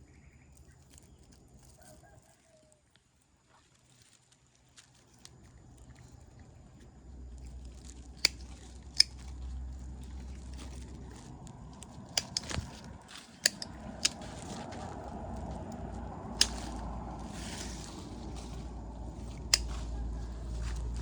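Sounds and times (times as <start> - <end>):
low rumble: 6.2 - 21.0
sharp clicks and snaps: 8.2 - 9.4, 11.8 - 14.3, 16.3 - 17.0, 19.2 - 19.9.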